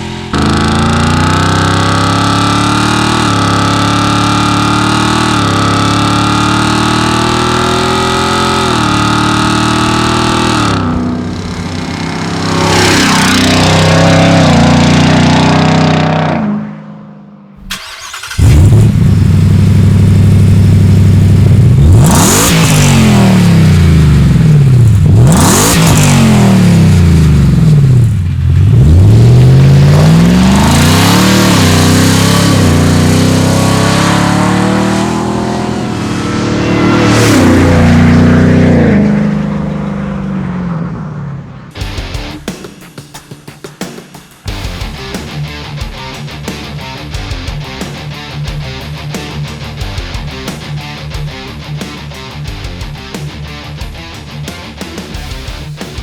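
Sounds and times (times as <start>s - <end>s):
car engine accelerating through gears: 0.0s - 41.7s
car engine revving: 0.0s - 42.3s.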